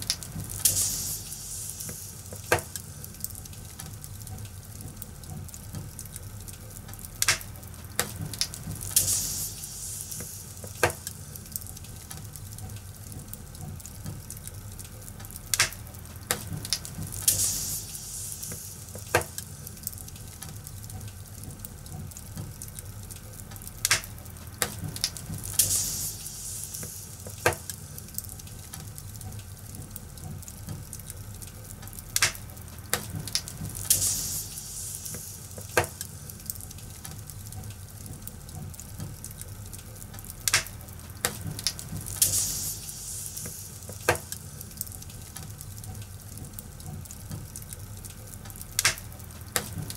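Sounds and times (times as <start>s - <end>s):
fire crackling and popping: 0.0s - 49.9s
fire low rumble and hiss: 0.0s - 49.9s.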